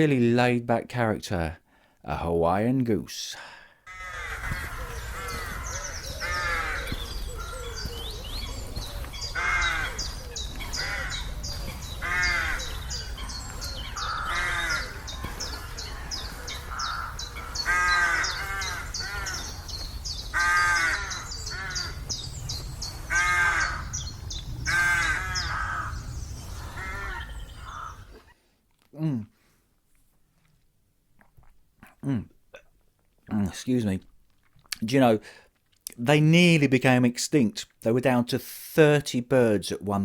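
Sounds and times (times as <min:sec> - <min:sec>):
geese honking: 0:09.3 - 0:19.6, 0:20.3 - 0:22.0, 0:23.1 - 0:24.0, 0:24.7 - 0:25.9.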